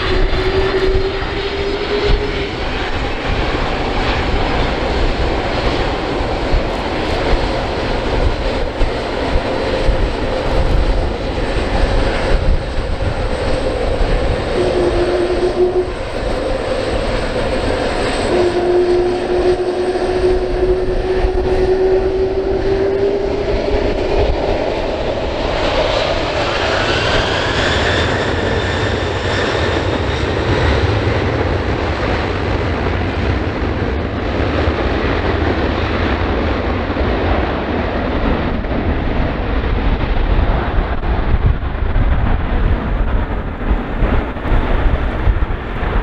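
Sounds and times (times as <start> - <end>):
humming engine tone: 0.0 - 32.5
jet engines rumbling: 0.0 - 46.0.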